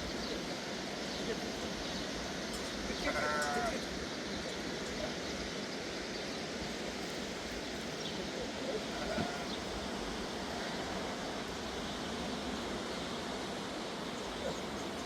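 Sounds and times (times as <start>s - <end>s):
outdoor background noise: 0.0s - 15.0s
faint sheep bleat: 3.0s - 3.8s, 8.8s - 9.6s.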